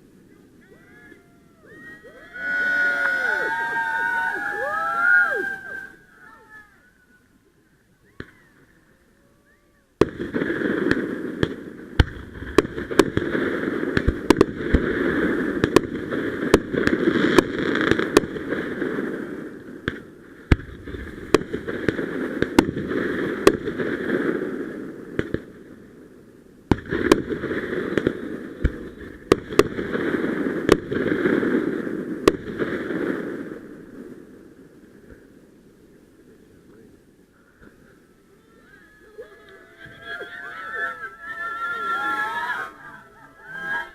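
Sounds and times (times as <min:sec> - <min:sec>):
fireworks bangs and pops: 0:10.0 - 0:26.0, 0:26.6 - 0:35.5.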